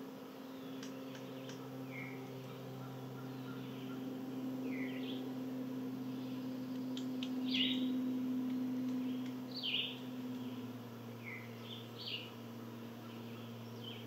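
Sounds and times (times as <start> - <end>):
songbirds chirping: 0.0 - 14.0
steady low hum: 0.0 - 14.0
faint ticks: 6.7 - 7.4.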